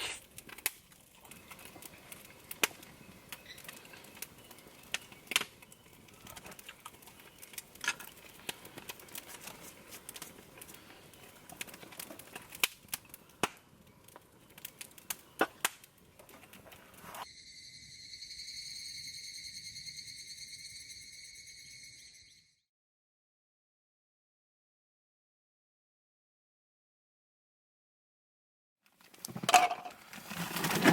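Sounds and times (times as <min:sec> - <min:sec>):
fire crackling and popping: 0:00.0 - 0:17.2.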